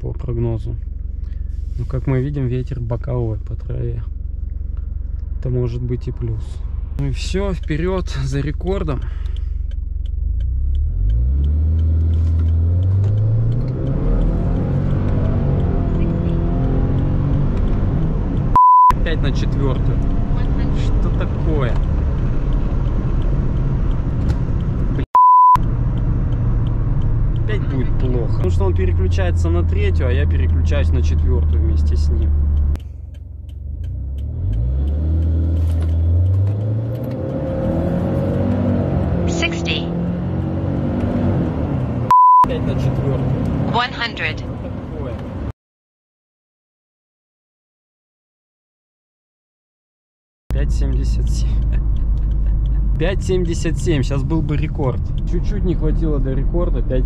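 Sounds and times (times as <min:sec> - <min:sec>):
car engine accelerating hard: 0:01.0 - 0:45.5, 0:50.5 - 0:57.0.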